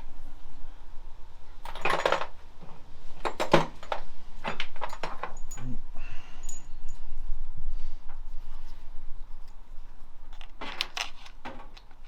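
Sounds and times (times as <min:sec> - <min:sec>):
metal tools clinking: 0:03.3 - 0:05.8, 0:06.4 - 0:07.0.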